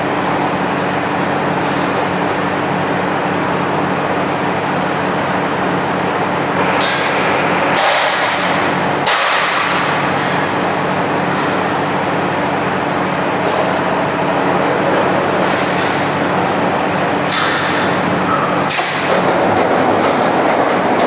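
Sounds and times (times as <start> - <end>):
punching machine humming: 5.6 - 21.0.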